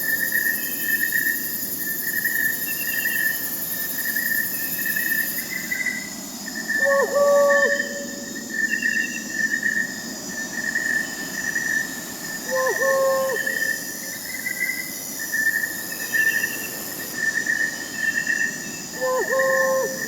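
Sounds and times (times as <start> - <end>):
crickets trilling: 0.0 - 20.0
owl hooting: 6.8 - 8.3, 12.4 - 14.0, 19.0 - 20.0.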